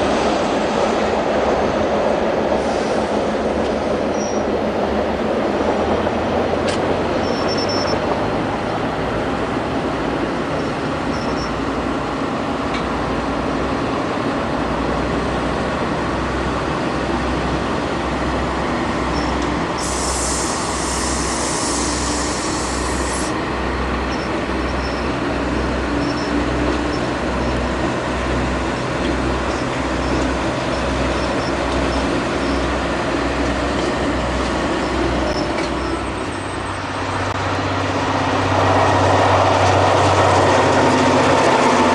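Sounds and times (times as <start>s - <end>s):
train rumbling on rails: 0.0s - 41.9s
high hiss: 19.8s - 23.3s.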